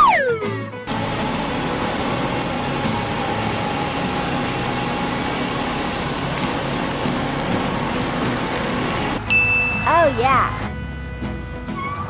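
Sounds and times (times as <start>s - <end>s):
cement mixer whirring: 0.9s - 9.2s.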